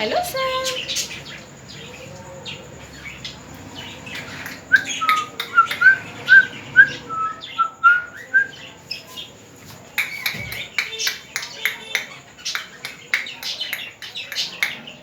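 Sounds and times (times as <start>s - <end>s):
parrot whistled chirps: 4.5s - 8.6s.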